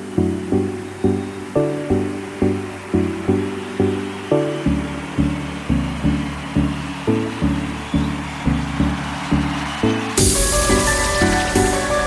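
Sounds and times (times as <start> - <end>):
drum and bass music: 0.0 - 12.0
cymbal-like hiss: 10.2 - 12.0.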